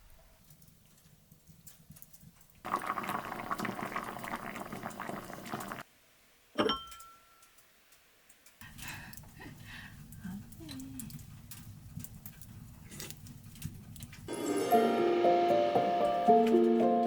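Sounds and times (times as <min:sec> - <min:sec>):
liquid pouring: 0:02.6 - 0:05.8
glass clink with ring: 0:06.6 - 0:07.4.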